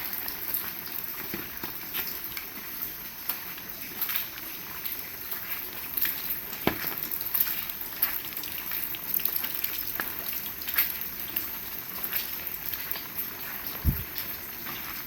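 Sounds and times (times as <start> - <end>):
raindrops tapping surfaces: 0.0 - 15.0
heavy rain hissing: 13.2 - 15.0.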